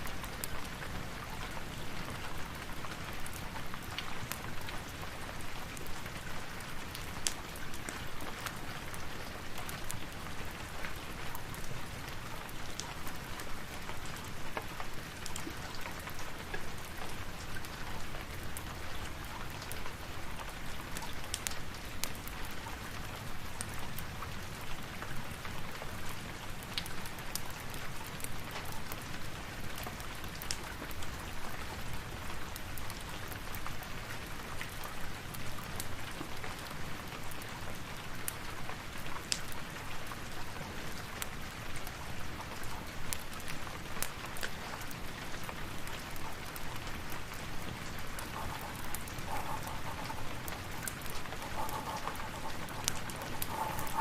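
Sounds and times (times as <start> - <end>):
steady rain falling: 0.0 - 54.0
fireplace crackling: 45.8 - 54.0.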